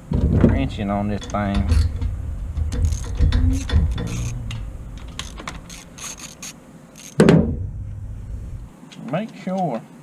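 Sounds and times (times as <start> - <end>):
hand ratchet clicking: 1.2 - 7.2.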